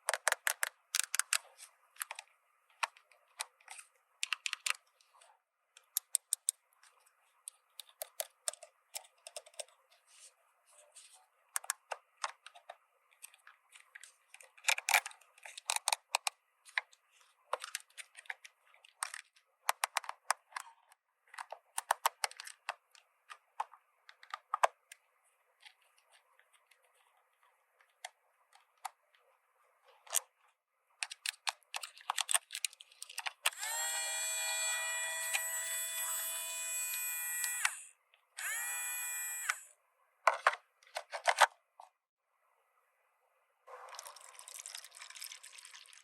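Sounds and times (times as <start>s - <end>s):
plastic toy pieces clicking: 0.0s - 1.4s, 31.0s - 33.5s.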